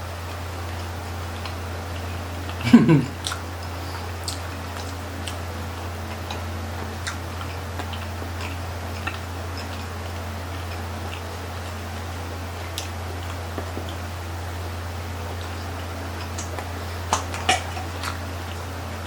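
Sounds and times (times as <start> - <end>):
steady low hum: 0.0 - 19.0
chewing clicks: 0.3 - 14.2, 15.0 - 19.0.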